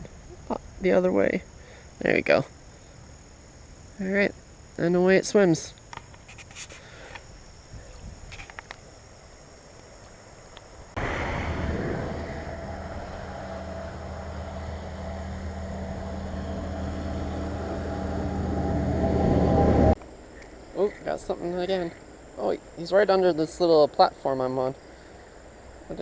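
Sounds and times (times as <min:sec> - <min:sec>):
vehicle engine hum and tyre noise: 0:11.0 - 0:20.0.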